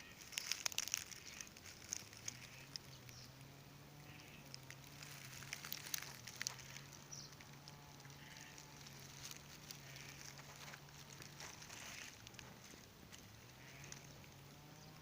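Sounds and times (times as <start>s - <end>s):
distant animal calls: 0.0s - 15.0s
low steady hum: 0.0s - 15.0s
ticks and crackles: 0.0s - 15.0s.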